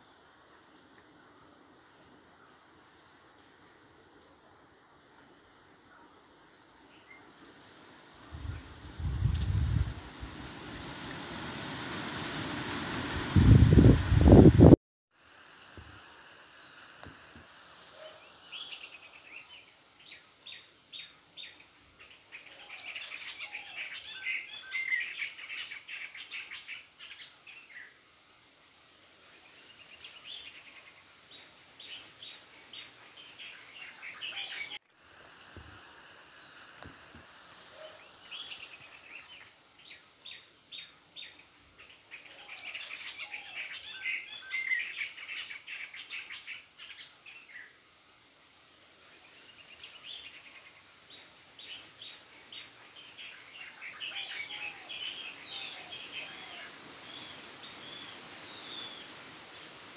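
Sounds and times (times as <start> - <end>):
small birds chirping: 6.6 - 9.9.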